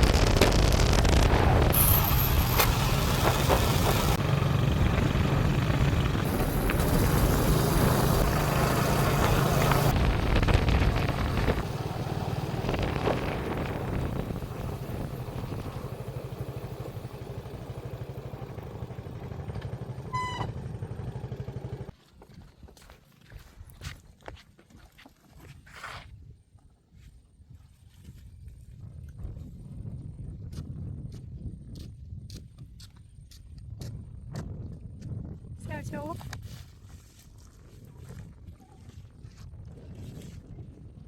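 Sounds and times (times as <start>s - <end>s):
wind noise on microphone: 0.0s - 4.2s, 4.8s - 16.8s, 25.8s - 41.0s
engine running: 0.0s - 22.0s
brief pitched tone: 20.0s - 20.8s.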